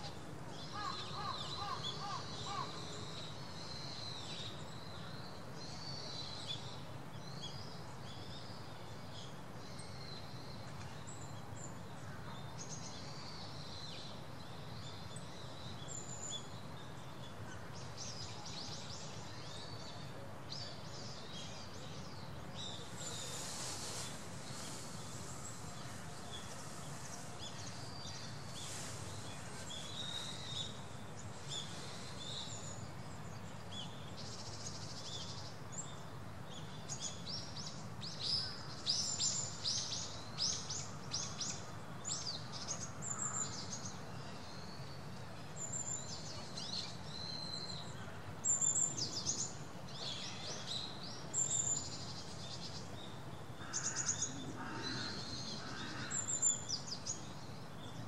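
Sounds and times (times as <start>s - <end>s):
small birds chirping: 20.6s - 36.0s.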